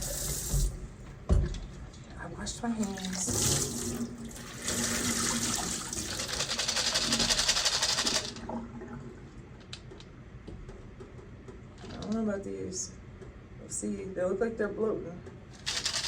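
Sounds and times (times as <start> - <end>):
tap water running: 0.0 - 2.0, 2.6 - 9.3.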